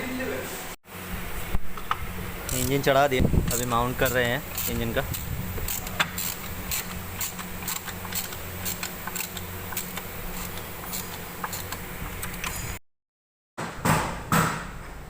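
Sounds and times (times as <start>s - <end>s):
steady low hum: 0.0s - 12.8s
hand tools tapping on metal: 1.8s - 2.9s.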